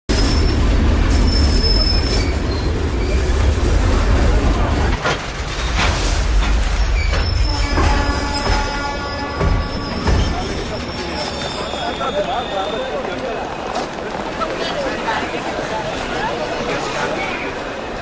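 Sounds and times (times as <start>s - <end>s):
high wheel squeal: 0.1s - 3.4s, 6.8s - 13.1s
train rumbling on rails: 0.1s - 18.0s
sharp clacks of train wheels: 4.8s - 14.4s.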